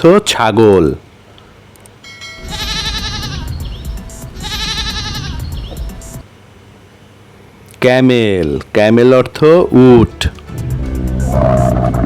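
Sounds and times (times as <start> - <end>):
goat bleating: 2.4 - 3.7, 4.3 - 5.6.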